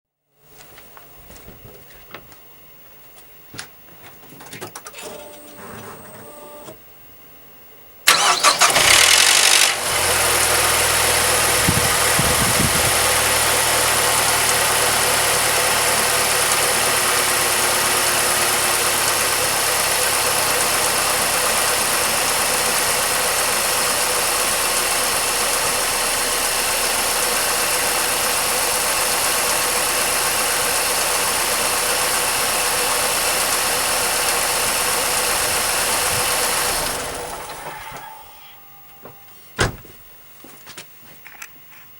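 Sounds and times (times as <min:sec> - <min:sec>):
car engine idling: 0:08.1 - 0:39.0
car engine starting with clatter: 0:08.1 - 0:39.2.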